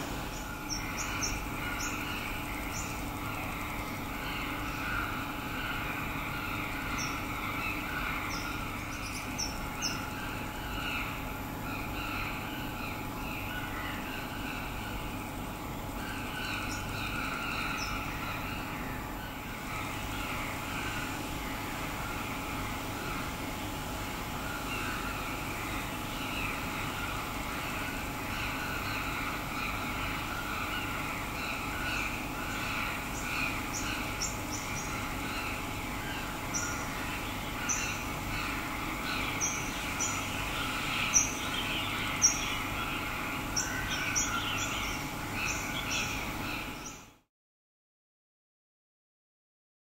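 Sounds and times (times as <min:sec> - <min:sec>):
distant traffic hum: 0:00.0 - 0:13.2
small birds chirping: 0:00.0 - 0:47.2
lower bird calls: 0:00.0 - 0:47.3.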